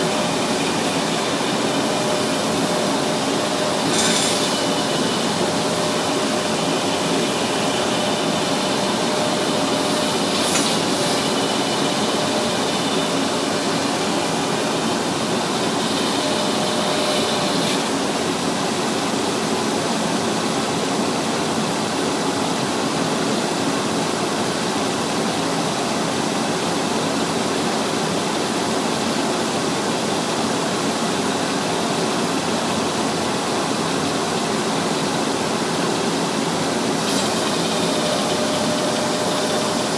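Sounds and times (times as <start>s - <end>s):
sanding machine grinding: 0.0s - 18.0s, 37.0s - 39.9s.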